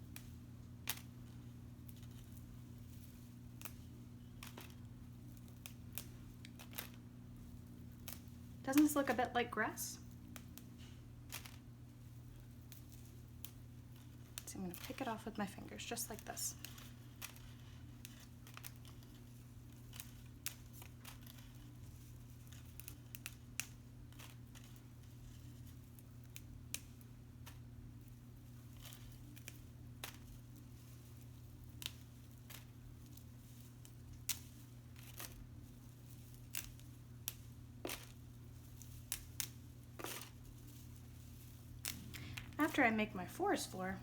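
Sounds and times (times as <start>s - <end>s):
steady low hum: 0.0s - 44.0s
pine straw snapping and tearing: 0.1s - 1.1s, 1.9s - 7.0s, 8.0s - 9.0s, 16.2s - 27.6s, 28.7s - 42.6s.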